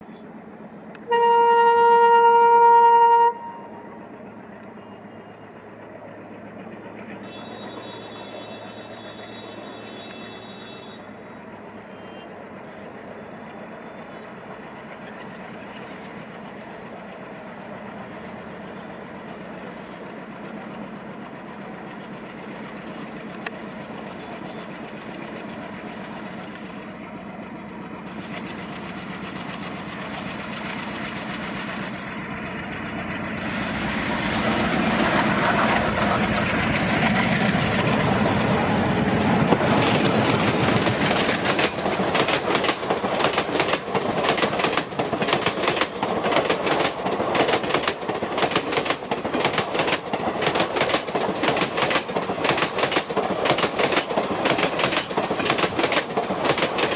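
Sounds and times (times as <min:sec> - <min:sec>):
diesel locomotive engines: 0:00.0 - 0:56.9
train wheels clattering over rails: 0:12.6 - 0:56.9.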